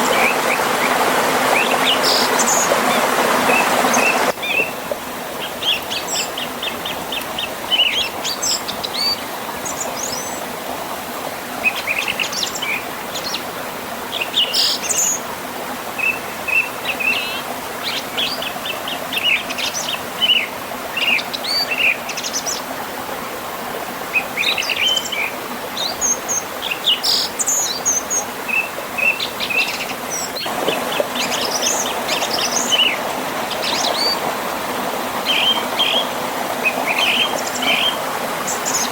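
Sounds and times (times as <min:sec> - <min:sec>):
songbirds chirping and trilling: 0:00.0 - 0:10.5, 0:24.1 - 0:38.9
river and small waterfall rushing: 0:00.0 - 0:38.9.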